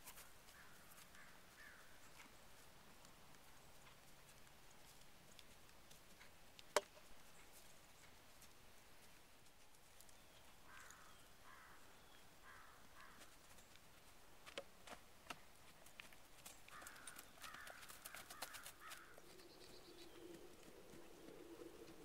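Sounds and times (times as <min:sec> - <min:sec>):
faint harsh bird calls: 0:00.1 - 0:02.0, 0:10.3 - 0:13.7, 0:16.7 - 0:22.0.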